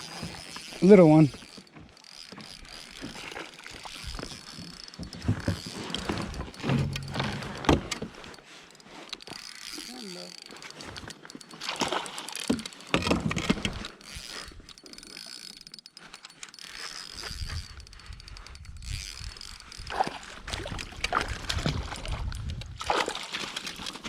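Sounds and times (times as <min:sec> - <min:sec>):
fishing reel clicking: 0:00.0 - 0:24.0
handling noise against kayak: 0:04.0 - 0:08.3.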